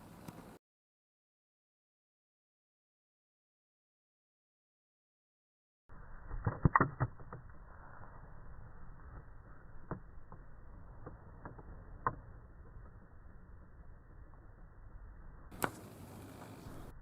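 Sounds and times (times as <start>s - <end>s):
muffled background hiss: 15.6s - 16.9s.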